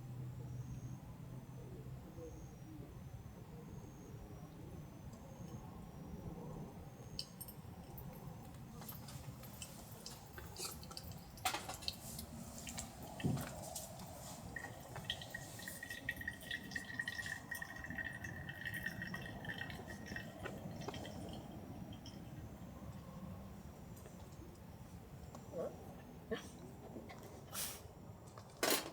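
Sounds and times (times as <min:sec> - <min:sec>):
thin steady tone: 0:00.3 - 0:25.8
water dripping and trickling: 0:07.2 - 0:22.8.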